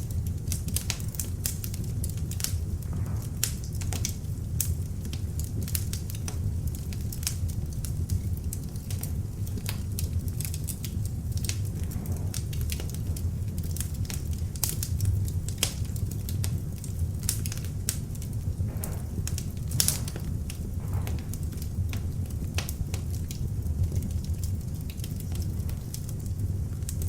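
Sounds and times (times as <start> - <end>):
fire flames rumbling: 0.0 - 27.0
wood crackling and popping: 0.0 - 27.0.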